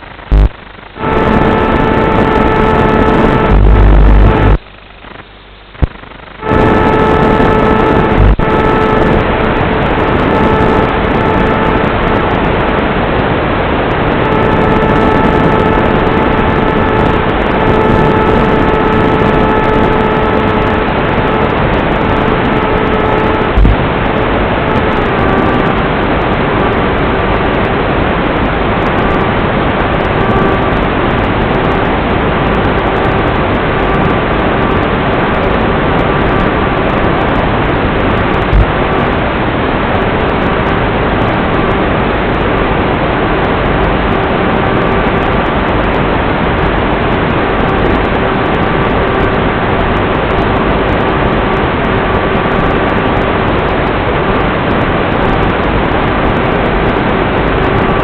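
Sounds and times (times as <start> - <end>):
electric motor whine: 0.3 - 4.6, 6.4 - 12.6, 14.0 - 25.8.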